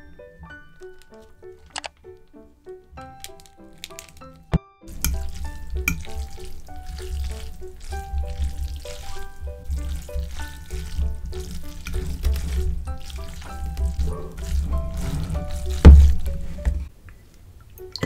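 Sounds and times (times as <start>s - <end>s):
light background music: 0.0s - 16.9s
fork mixing wet noodles: 4.9s - 16.9s.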